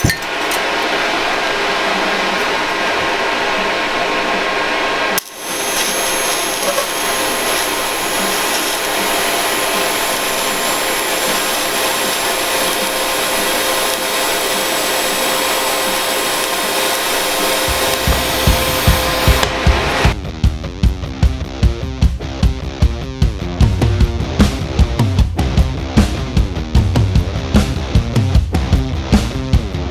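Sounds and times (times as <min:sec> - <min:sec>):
power tool running: 0:00.0 - 0:20.2
heavy rock music: 0:01.4 - 0:29.9.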